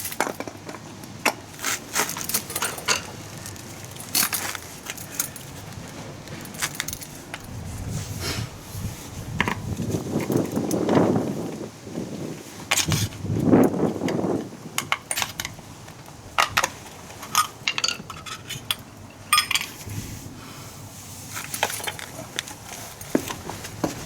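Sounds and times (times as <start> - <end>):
metal tools clinking: 1.6 - 7.5, 16.4 - 19.9, 21.4 - 23.4.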